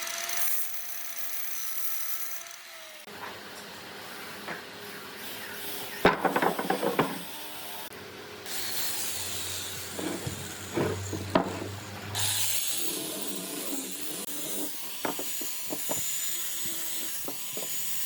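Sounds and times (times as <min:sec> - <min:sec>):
wood rubbing: 0:05.9 - 0:07.3, 0:09.8 - 0:12.0, 0:12.8 - 0:17.8
wooden knocks: 0:06.0 - 0:07.2, 0:10.0 - 0:11.7, 0:15.0 - 0:16.0.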